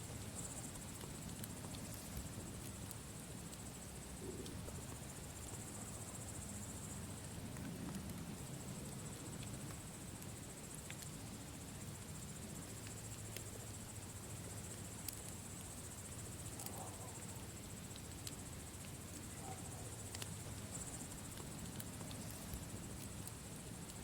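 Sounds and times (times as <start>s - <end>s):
low fire rumble: 0.0s - 24.0s
campfire wood popping: 0.1s - 24.0s.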